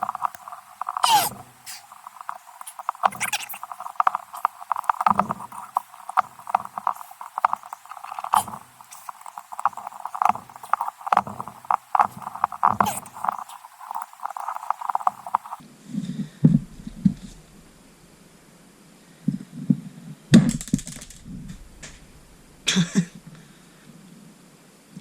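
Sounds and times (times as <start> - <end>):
metal clicks knocks and scrapes: 0.0 - 15.6
short squeaks: 0.0 - 15.6.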